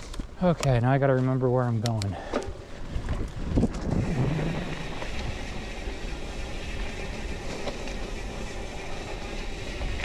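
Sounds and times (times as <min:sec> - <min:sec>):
faint bike ticks: 0:00.0 - 0:03.5
bike tyres rumbling on dirt: 0:02.2 - 0:10.0
wind on microphone: 0:02.8 - 0:05.8.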